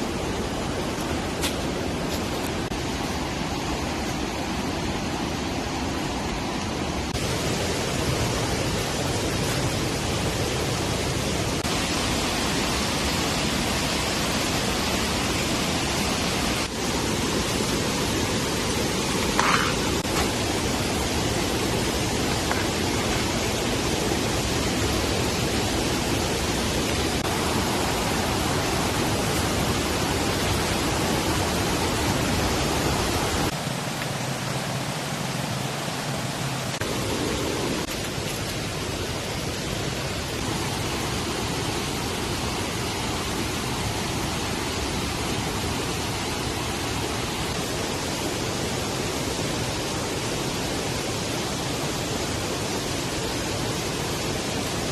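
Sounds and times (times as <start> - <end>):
rain falling steadily: 0.0 - 54.9.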